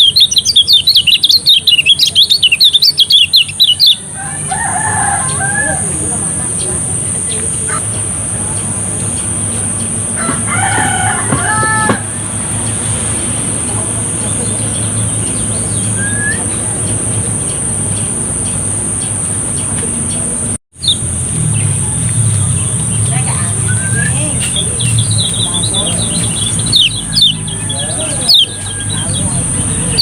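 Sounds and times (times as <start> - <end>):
songbird chirps: 0.0 - 30.0
rooster crowing: 4.0 - 6.3, 10.1 - 12.6, 25.7 - 30.0
high-pitched whine: 11.9 - 30.0
low hum: 12.0 - 30.0.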